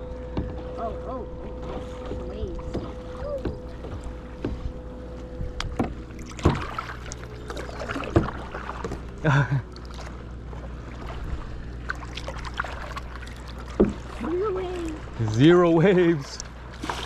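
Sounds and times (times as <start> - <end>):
low rumble of wind and water: 0.0 - 17.0
paddle strokes in water: 0.2 - 17.0.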